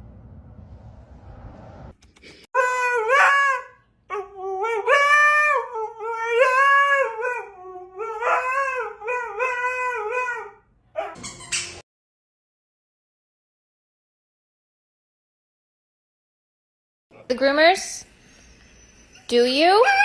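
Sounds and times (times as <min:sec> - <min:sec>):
dog howling: 0:02.6 - 0:11.2.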